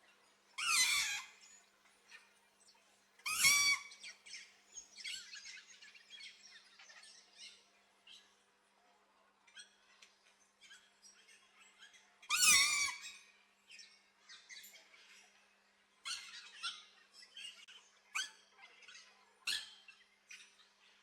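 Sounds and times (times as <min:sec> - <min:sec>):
soft bird chirps: 0:09.5 - 0:21.0.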